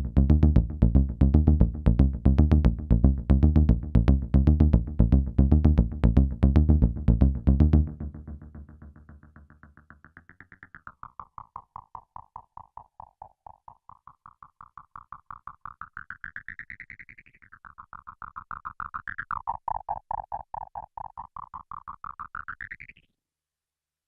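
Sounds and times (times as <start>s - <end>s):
synthesizer bass notes: 0.0s - 16.8s.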